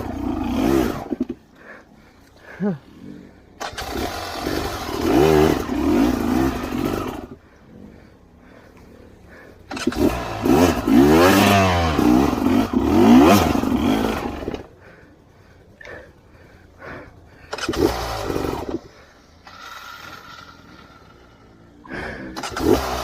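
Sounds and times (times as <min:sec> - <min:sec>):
dirt bike engine revving: 0:00.0 - 0:01.8, 0:02.4 - 0:15.0, 0:16.8 - 0:23.0.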